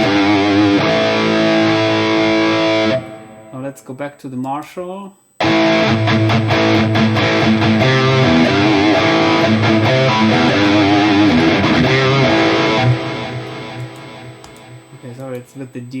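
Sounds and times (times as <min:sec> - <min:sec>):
distorted electric guitar: 0:00.0 - 0:03.8, 0:05.4 - 0:15.5.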